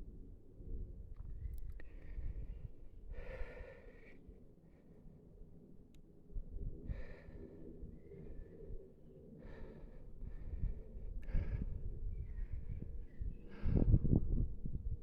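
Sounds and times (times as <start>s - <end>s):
person breathing: 3.1s - 4.3s, 6.8s - 12.0s.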